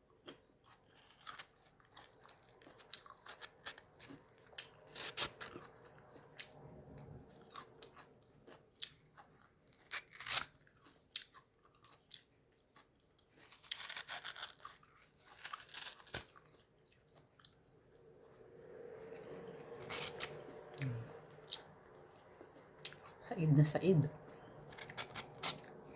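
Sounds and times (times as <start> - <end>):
chewing crunchy fruit: 0.0 - 25.9.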